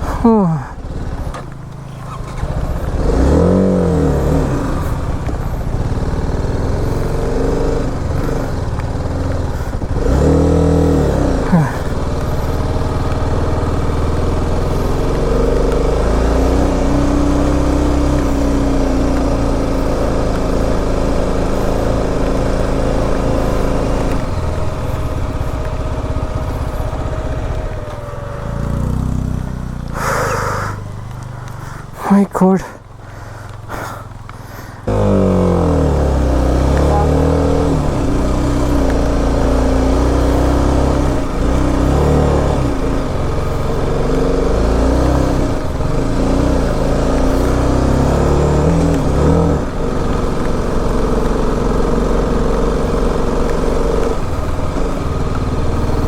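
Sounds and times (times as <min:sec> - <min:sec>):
motorcycle engine pulling uphill: 0:00.0 - 0:56.0.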